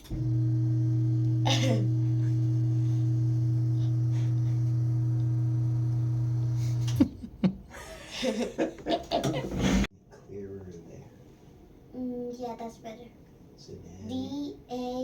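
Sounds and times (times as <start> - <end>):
low electric hum: 0.0 - 9.8.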